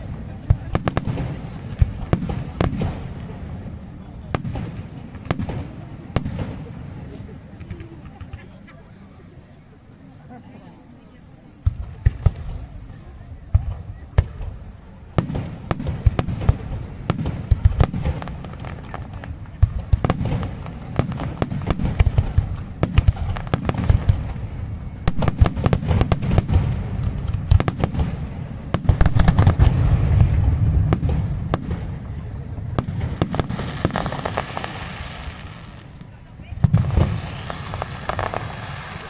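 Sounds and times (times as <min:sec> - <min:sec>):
deep rolling firework booms: 0:11.6 - 0:39.0.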